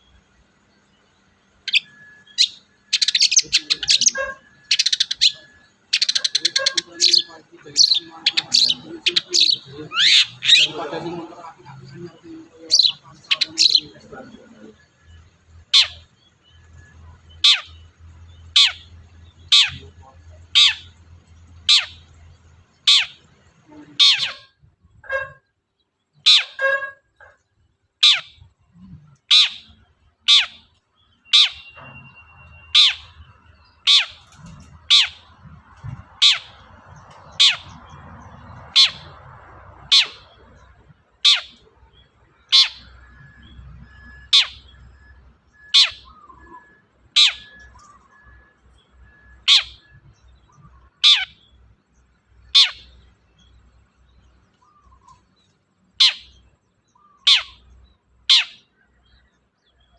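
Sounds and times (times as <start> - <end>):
shrike calls: 0.0 - 25.2, 28.0 - 51.5, 54.5 - 59.9.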